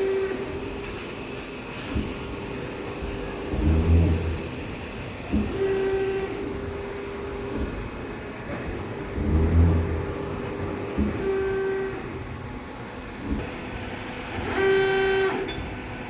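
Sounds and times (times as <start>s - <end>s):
press brake whine: 1.9s - 7.8s, 8.6s - 12.2s, 14.2s - 15.8s.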